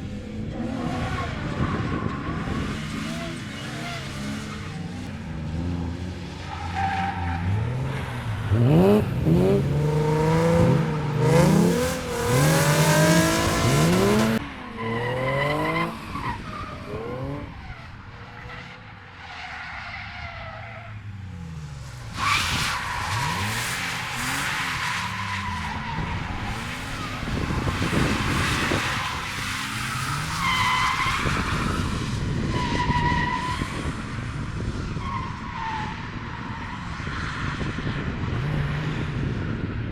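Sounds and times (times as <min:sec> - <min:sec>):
car engine revving hard: 0:08.5 - 0:14.4.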